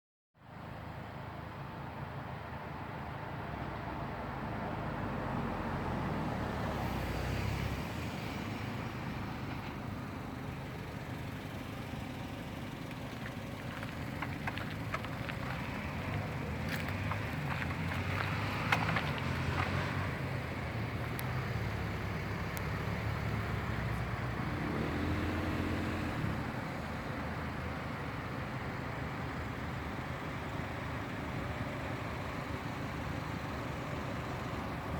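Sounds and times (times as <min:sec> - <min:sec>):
traffic noise: 0:00.4 - 0:34.9.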